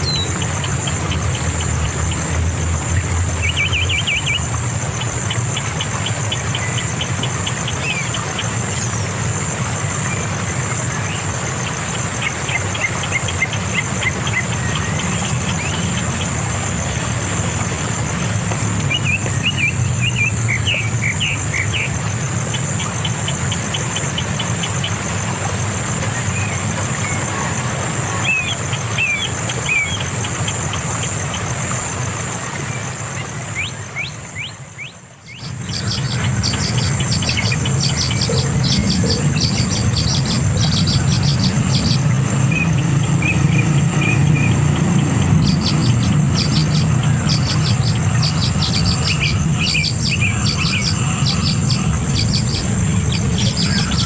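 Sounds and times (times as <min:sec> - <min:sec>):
birds chirping: 0:00.0 - 0:54.0
steady low hum: 0:35.2 - 0:54.0
high-pitched whine: 0:35.4 - 0:54.0.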